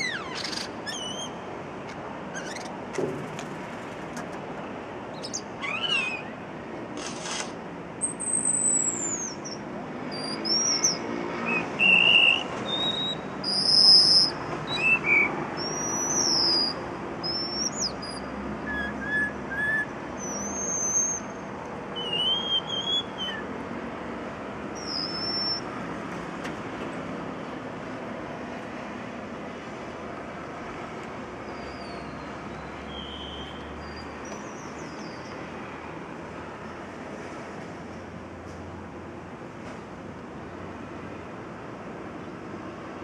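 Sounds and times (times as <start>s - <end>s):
bird whistled calls: 0.0s - 1.4s, 5.2s - 6.4s, 8.1s - 23.5s, 24.8s - 25.7s, 31.5s - 35.3s
city noise hum: 0.0s - 43.0s.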